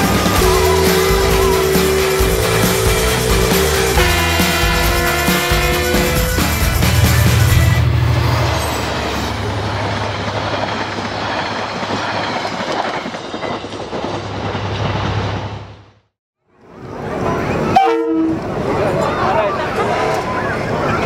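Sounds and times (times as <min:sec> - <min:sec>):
locomotive engine hum: 0:00.0 - 0:16.0
wheel and rail noise: 0:00.0 - 0:21.0.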